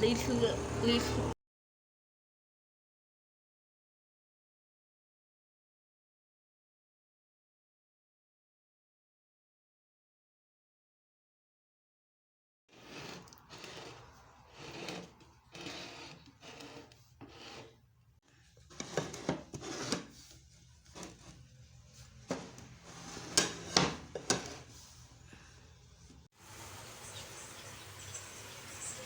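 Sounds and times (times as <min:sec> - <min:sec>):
rubbing and scraping handling noise: 0:12.7 - 0:26.3.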